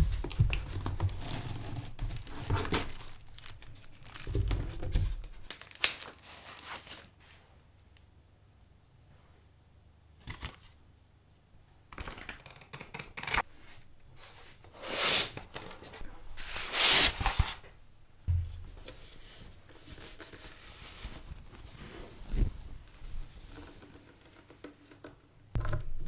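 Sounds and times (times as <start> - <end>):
cardboard rustling and tearing: 0.0 - 7.2.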